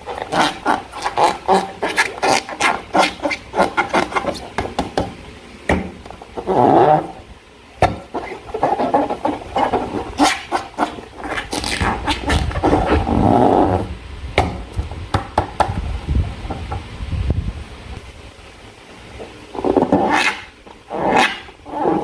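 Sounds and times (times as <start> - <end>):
rubber balloons squishing: 0.0 - 14.0.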